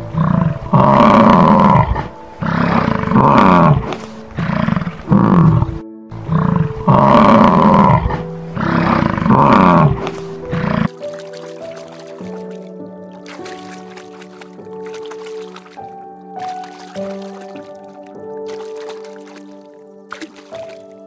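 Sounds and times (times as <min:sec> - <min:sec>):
bison bellowing: 0:00.0 - 0:10.9
soft piano music: 0:00.0 - 0:21.0.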